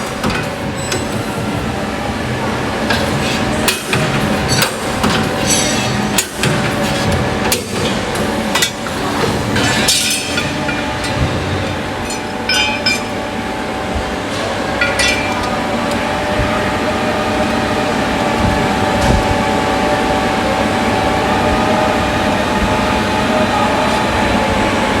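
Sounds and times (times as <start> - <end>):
punching machine hum: 0.0 - 25.0
metal clanks and clinks: 12.0 - 13.2, 14.8 - 15.6.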